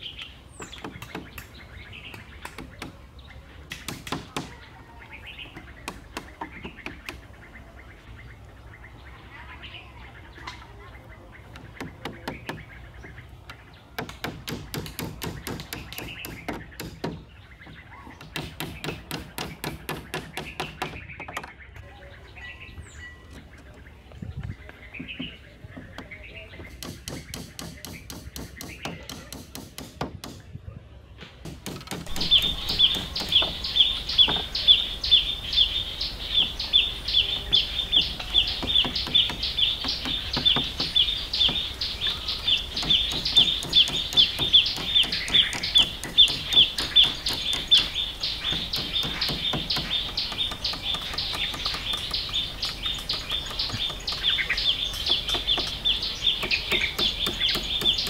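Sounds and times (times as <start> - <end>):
bird high chirp: 0.0 - 29.7, 31.7 - 58.0
hatchet knocking on wooden poles: 0.7 - 1.5, 3.7 - 4.6, 5.4 - 7.2, 11.5 - 12.7, 13.4 - 21.5, 25.0 - 30.4, 31.4 - 34.7, 37.3 - 58.0.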